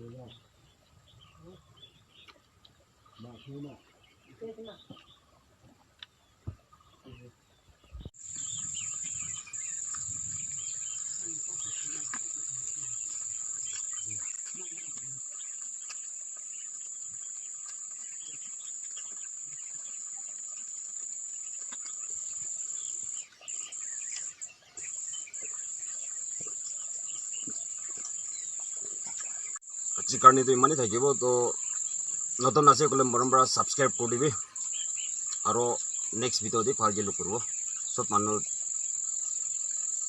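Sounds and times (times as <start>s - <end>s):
insects shrilling: 8.2s - 40.0s.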